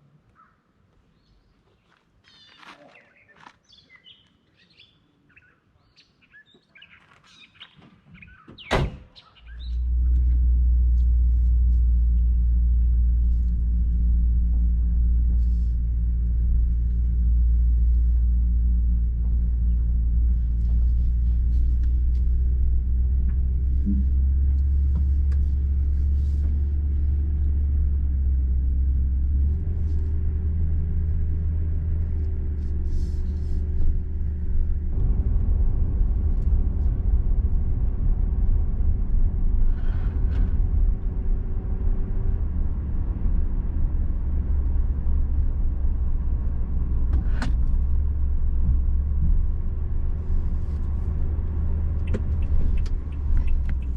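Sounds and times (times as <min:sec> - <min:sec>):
birds chirping faintly: 0:00.0 - 0:09.9
car engine rumbling: 0:07.3 - 0:53.9.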